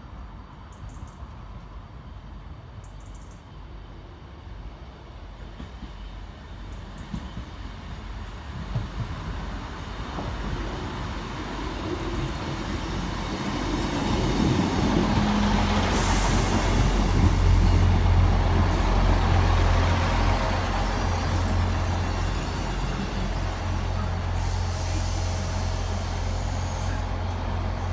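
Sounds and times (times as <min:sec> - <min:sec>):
train engine rumble: 0:00.0 - 0:27.9
air brake hisses: 0:15.7 - 0:17.9, 0:23.6 - 0:27.5.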